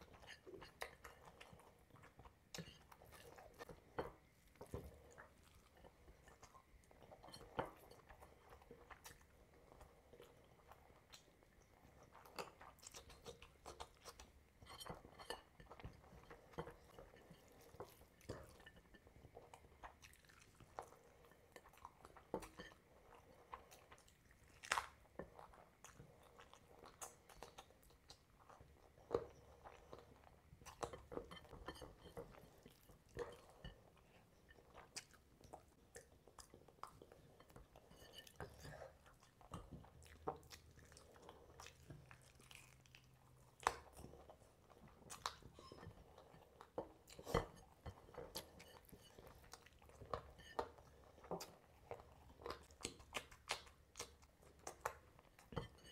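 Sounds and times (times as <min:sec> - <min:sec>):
person chewing: 0:23.1 - 0:55.9.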